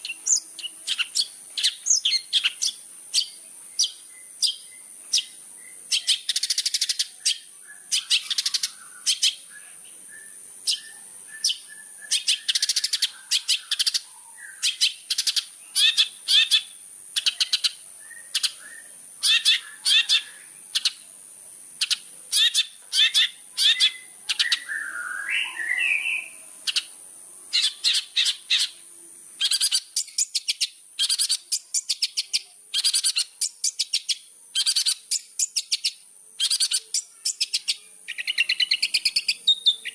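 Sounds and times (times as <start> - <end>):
soft bird warbling: 0.0 - 21.0
shrike chattering song: 10.6 - 21.0, 21.8 - 28.8, 29.4 - 39.9.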